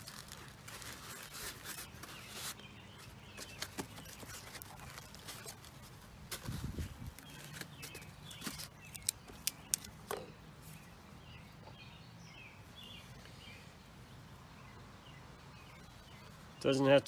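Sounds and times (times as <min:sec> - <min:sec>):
faint bird chirps: 0:06.8 - 0:17.0
clicks and rustles of crafting: 0:07.2 - 0:10.3.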